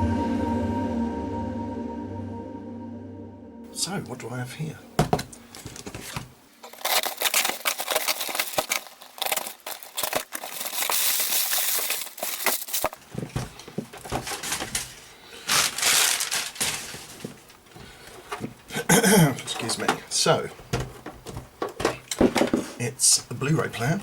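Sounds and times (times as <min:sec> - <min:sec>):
packaging crinkling and tearing: 0:05.2 - 0:17.6.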